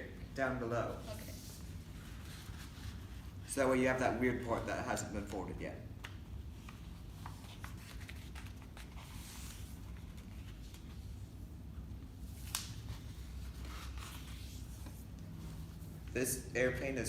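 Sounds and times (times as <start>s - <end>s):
paper rustling and crinkling: 6.6s - 11.2s.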